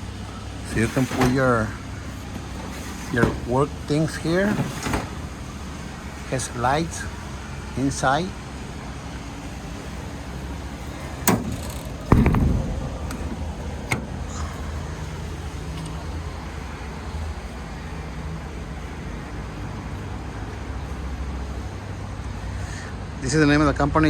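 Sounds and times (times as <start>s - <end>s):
loud slam: 11.3s - 14.2s
low rumble: 12.0s - 13.8s.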